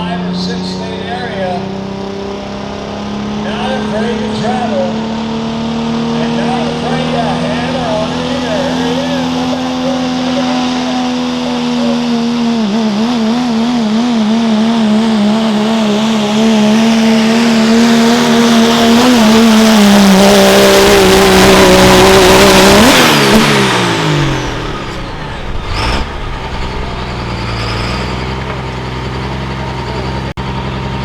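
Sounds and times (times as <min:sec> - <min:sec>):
diesel engine at full throttle: 0:00.0 - 0:31.0
turbo whine: 0:10.2 - 0:30.8.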